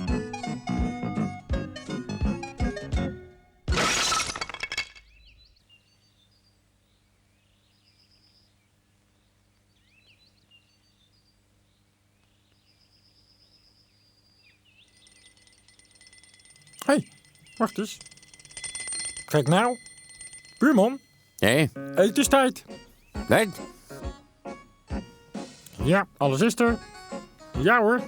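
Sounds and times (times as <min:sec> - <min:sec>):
crash with glassy clatter: 0:03.7 - 0:05.3.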